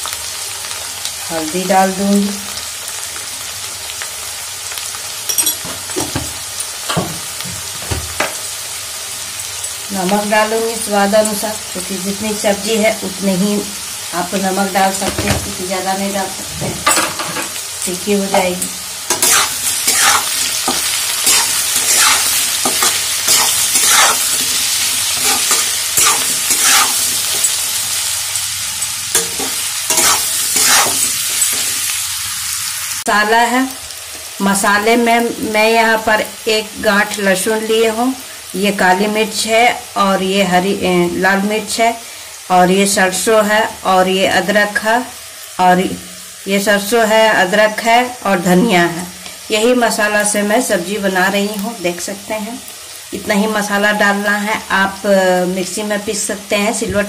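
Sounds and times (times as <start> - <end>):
vegetables sizzling in oil: 0.0 - 57.0
metal spatula scraping a pan: 19.1 - 27.8, 28.8 - 31.8.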